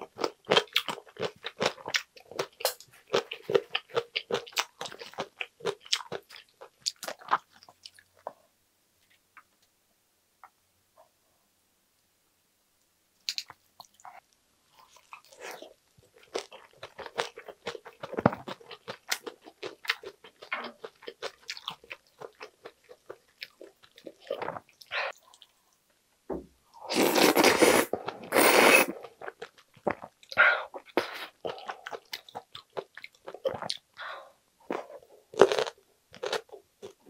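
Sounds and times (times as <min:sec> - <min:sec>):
loud long slurps: 0:26.9 - 0:28.9.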